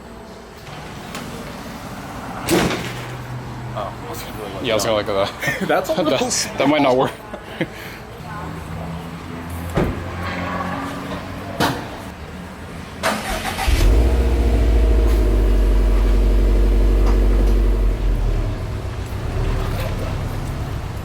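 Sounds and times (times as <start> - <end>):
car engine starting and running: 13.0 - 21.0.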